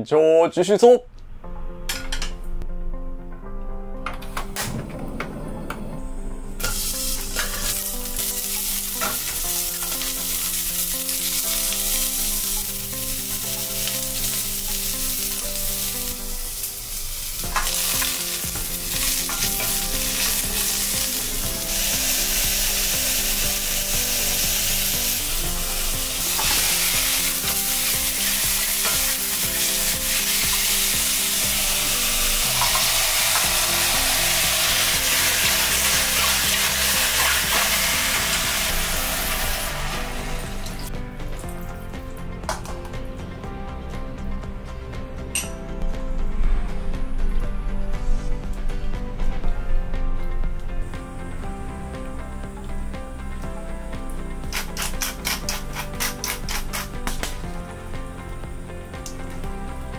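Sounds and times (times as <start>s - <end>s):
onions frying and sizzling: 6.6s - 42.9s, 48.2s - 59.9s.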